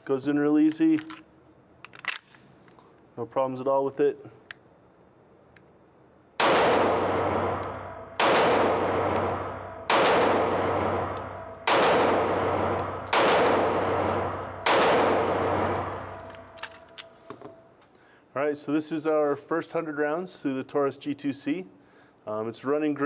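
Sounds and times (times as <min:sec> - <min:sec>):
pistol shots echoing: 0:06.4 - 0:17.1.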